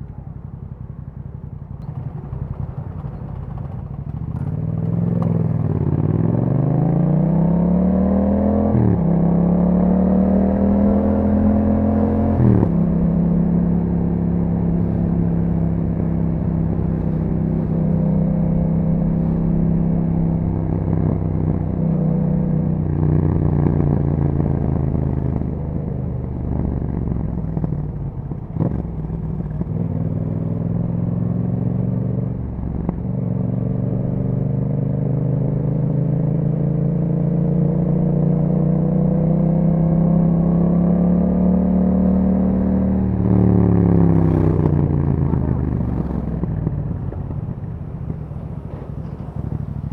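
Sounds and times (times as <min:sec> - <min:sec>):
motorcycle engine upshifting: 0:00.2 - 0:06.6, 0:09.8 - 0:34.3, 0:42.0 - 0:49.9.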